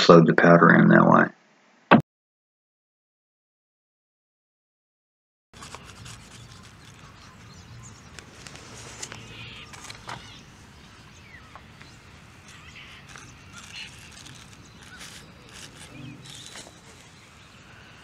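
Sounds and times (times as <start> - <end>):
bird chirps: 5.6 - 18.0.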